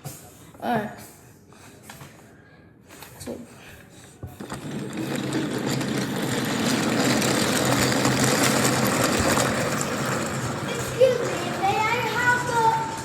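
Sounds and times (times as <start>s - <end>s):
toy electric motor whirring: 4.4s - 12.5s.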